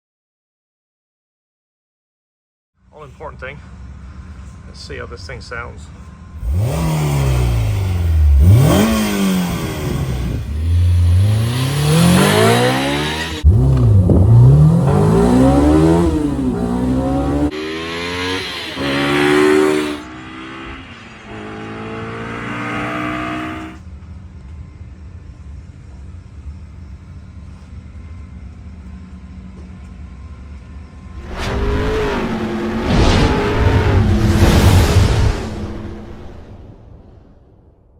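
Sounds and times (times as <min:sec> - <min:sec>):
car engine revving: 0:06.3 - 0:23.8, 0:31.2 - 0:36.7.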